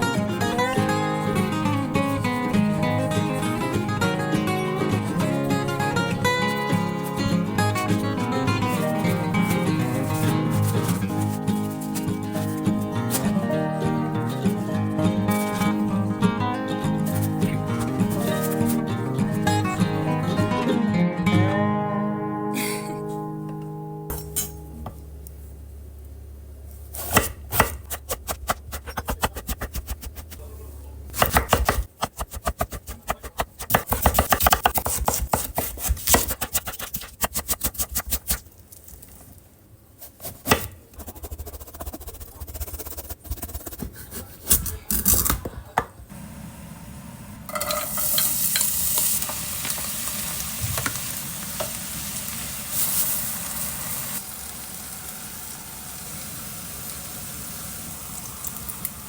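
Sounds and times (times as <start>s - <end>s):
food sizzling in a frying pan: 46.1s - 59.0s.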